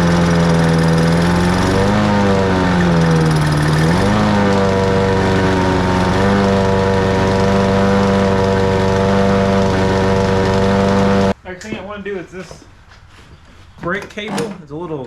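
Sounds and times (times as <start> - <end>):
lawn mower engine running: 0.0 - 11.4.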